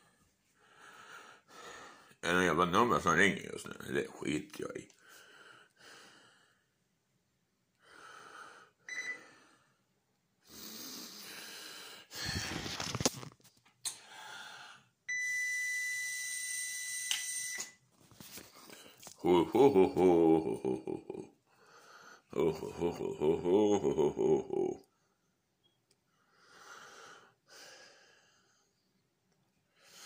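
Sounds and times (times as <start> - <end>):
man's breathy wheezy noises: 10.4 - 12.9.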